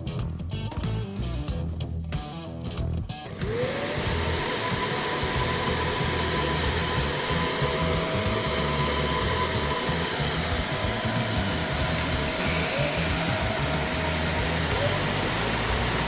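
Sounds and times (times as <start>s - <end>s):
music playing: 0.0s - 16.0s
vacuum cleaner running: 3.3s - 16.0s.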